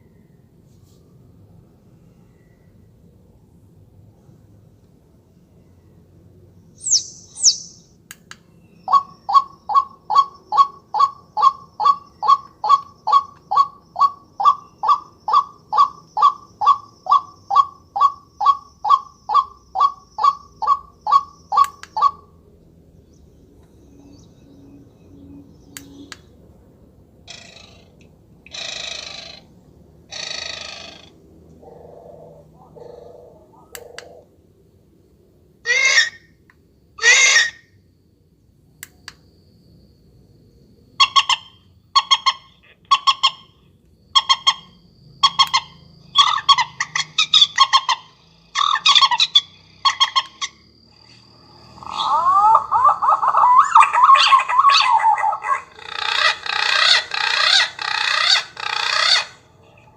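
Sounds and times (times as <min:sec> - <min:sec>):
electronic bird caller calls: 0:06.8 - 0:07.8, 0:08.9 - 0:22.3, 0:41.0 - 0:43.6, 0:44.2 - 0:51.1, 0:51.7 - 0:59.9.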